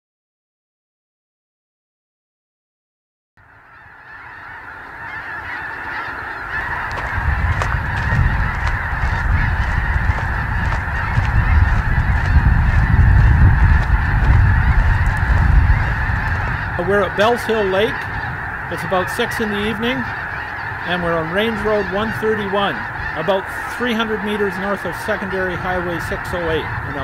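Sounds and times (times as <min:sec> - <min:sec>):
geese honking: 0:03.4 - 0:27.0
low rumble: 0:06.9 - 0:16.9.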